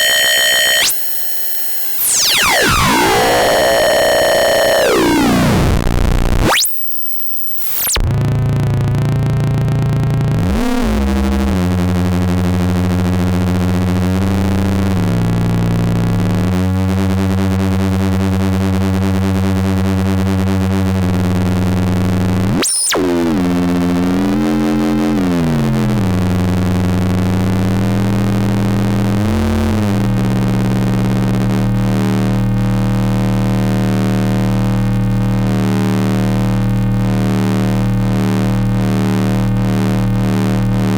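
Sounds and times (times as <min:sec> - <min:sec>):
buzzing square-wave synth drone: 0:00.0 - 0:40.9
high synth swoop: 0:02.0 - 0:05.8, 0:22.2 - 0:30.8.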